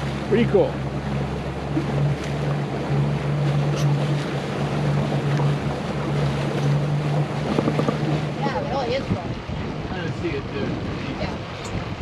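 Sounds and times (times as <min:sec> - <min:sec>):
motorboat engine humming: 0:00.0 - 0:12.0
water rushing past hull: 0:00.0 - 0:12.0
wind on microphone: 0:03.2 - 0:12.0.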